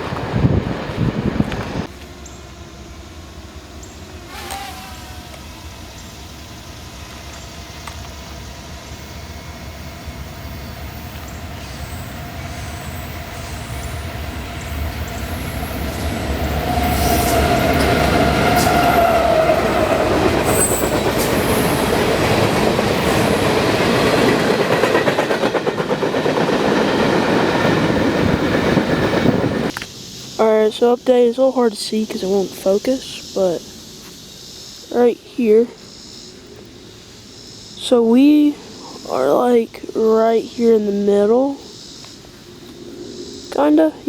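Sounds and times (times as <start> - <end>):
train wheels rumbling on rails: 0.0 - 34.2
train brake squeal: 7.3 - 14.0, 15.2 - 21.9.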